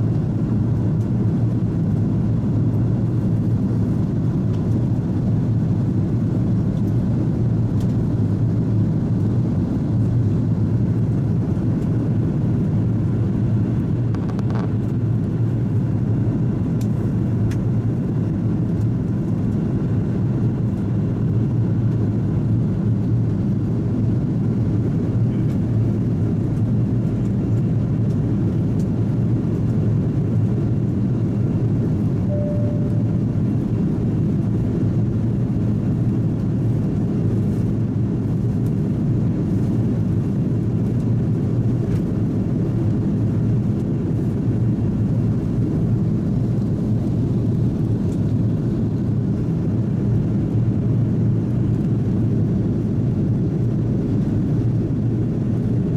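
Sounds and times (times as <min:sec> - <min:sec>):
aircraft cabin engine rumble: 0:00.0 - 0:55.9
faint brief tone: 0:32.3 - 0:33.2.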